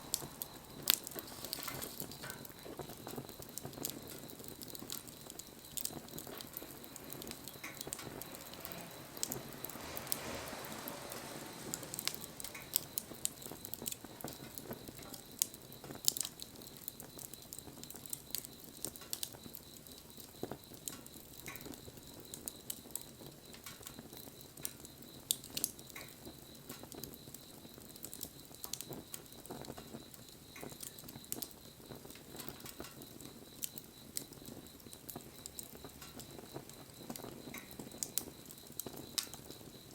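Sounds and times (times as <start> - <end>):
wood fire crackling: 0.0 - 39.9
soft rushing swell: 8.3 - 13.1.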